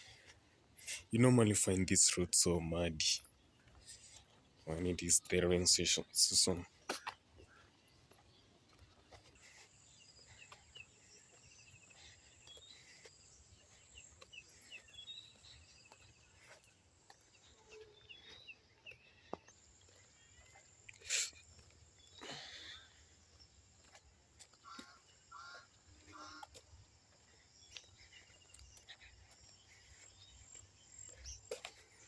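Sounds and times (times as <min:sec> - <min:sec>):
chirps and trills: 0:02.5 - 0:26.6.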